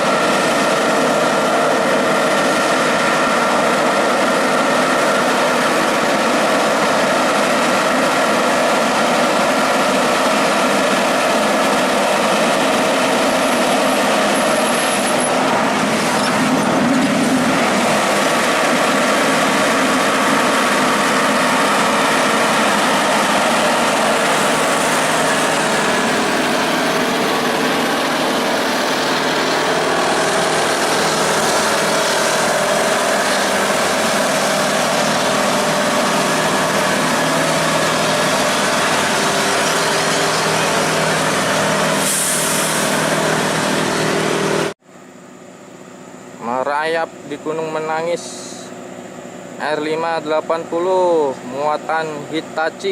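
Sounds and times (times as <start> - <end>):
diesel truck engine running: 0.0 - 44.8.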